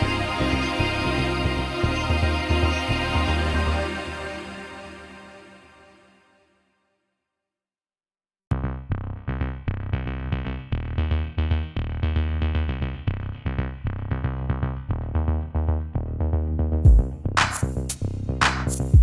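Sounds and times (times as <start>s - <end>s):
electronic music with drum-machine beat: 16.9s - 19.0s.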